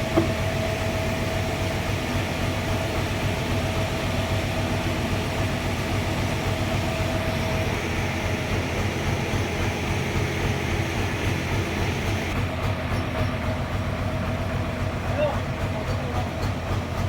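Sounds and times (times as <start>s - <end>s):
sawmill machinery drone: 0.0s - 17.0s.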